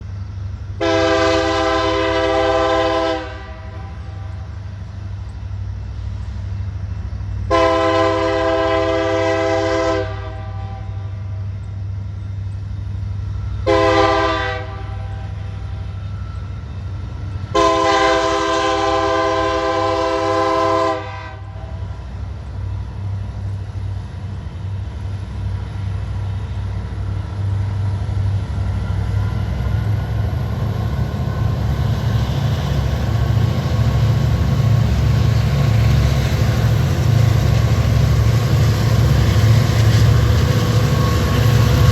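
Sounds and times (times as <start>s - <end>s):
low rumble of train engines: 0.0s - 41.9s
locomotive air horn blasts: 0.8s - 4.4s, 7.5s - 11.3s, 13.6s - 15.8s, 17.5s - 21.9s.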